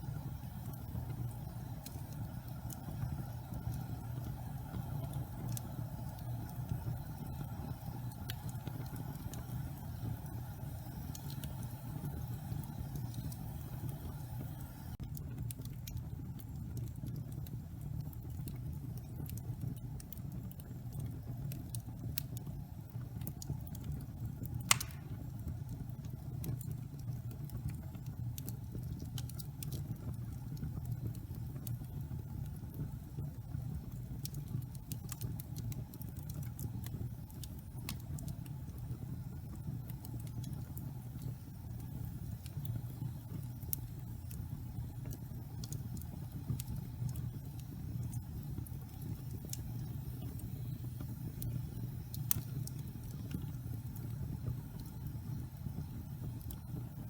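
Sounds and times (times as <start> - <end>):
wood fire crackling: 0.0 - 57.0
sharp pop of fire: 24.6 - 25.4.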